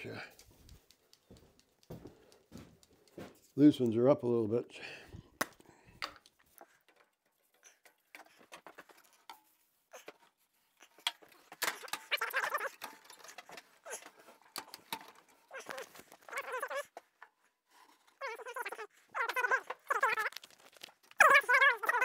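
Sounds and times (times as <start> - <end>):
metal parts clicking and knocking: 6.0 - 22.0.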